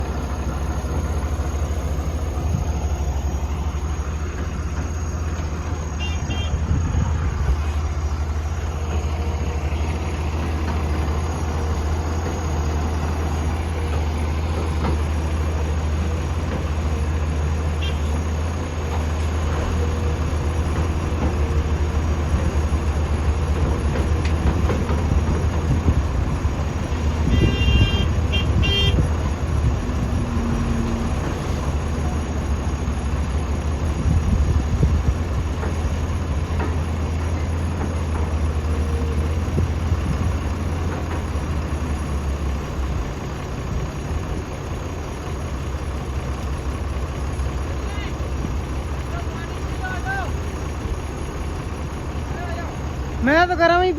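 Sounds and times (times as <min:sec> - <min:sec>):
diesel engine running: 0:00.0 - 0:53.9
vehicle horn toots: 0:06.0 - 0:06.6, 0:17.8 - 0:18.1, 0:27.2 - 0:29.0.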